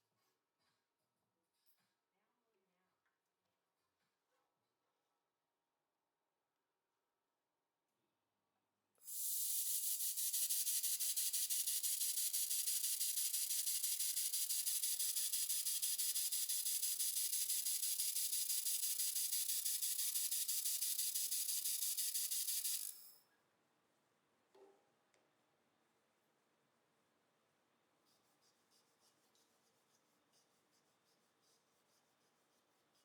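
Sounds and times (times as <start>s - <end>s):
laser welder hissing: 9.1s - 23.0s.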